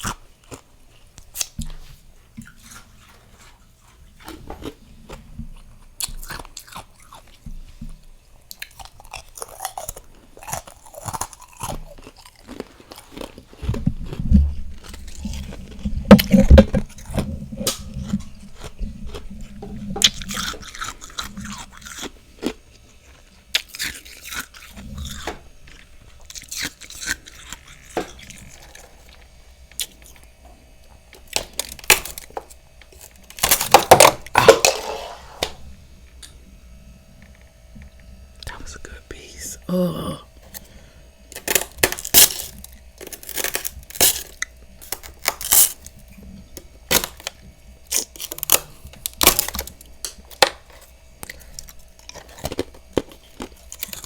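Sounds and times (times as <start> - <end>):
person crunching frost: 8.6 - 30.2, 38.4 - 46.0, 51.2 - 54.0.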